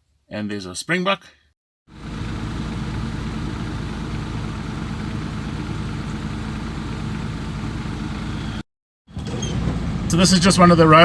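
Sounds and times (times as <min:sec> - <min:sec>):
car engine running: 0:01.9 - 0:08.6.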